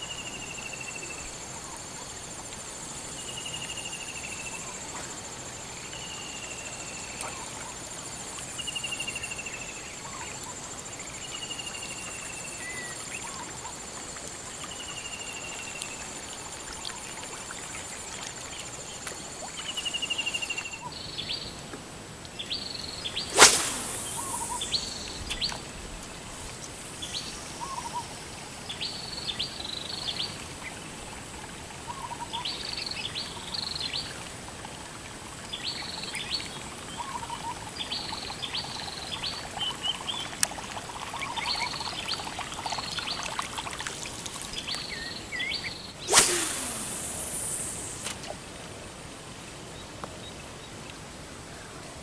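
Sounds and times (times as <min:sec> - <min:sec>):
steady outdoor hiss: 0:00.0 - 0:52.0
bird calling: 0:22.4 - 0:25.6
loud sharp noise: 0:23.3 - 0:24.6, 0:46.1 - 0:48.2.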